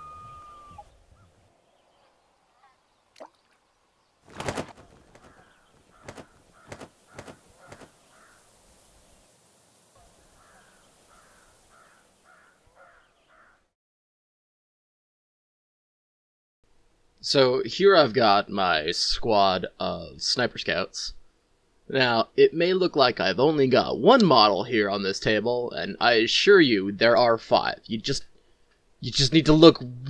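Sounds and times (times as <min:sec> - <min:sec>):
rough bird calls: 0:00.0 - 0:09.3, 0:10.0 - 0:13.7
short rushing burst: 0:04.3 - 0:08.0.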